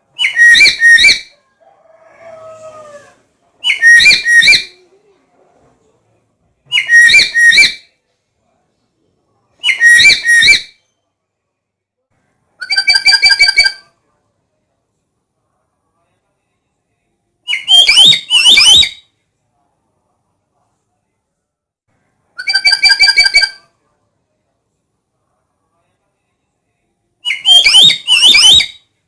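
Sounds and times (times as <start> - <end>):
parrot whistled calls: 0.2 - 1.3, 3.6 - 4.8, 6.7 - 7.8, 9.6 - 10.8, 17.5 - 19.0, 22.4 - 23.6, 27.3 - 28.8.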